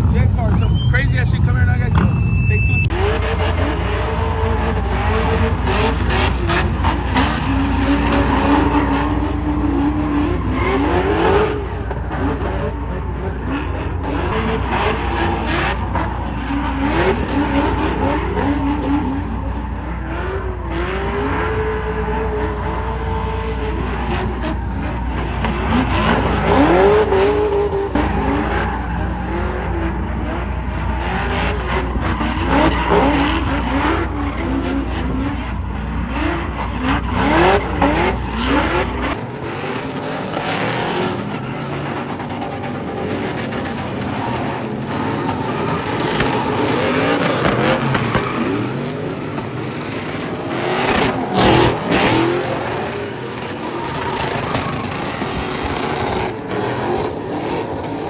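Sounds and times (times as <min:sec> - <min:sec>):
car engine revving: 0:00.0 - 0:58.0
tyres skidding and squealing: 0:00.0 - 0:58.0.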